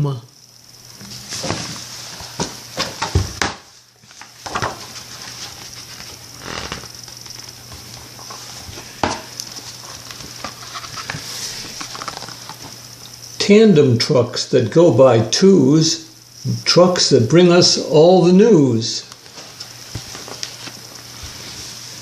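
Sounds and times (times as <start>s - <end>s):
pages turning: 1.0s - 12.8s, 19.2s - 22.0s.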